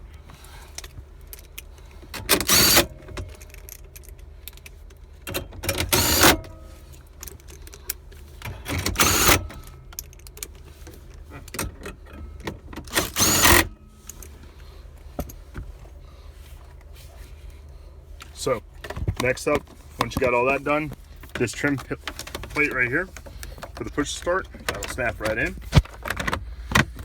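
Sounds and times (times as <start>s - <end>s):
plastic parts rustling and scraping: 18.6s - 27.0s.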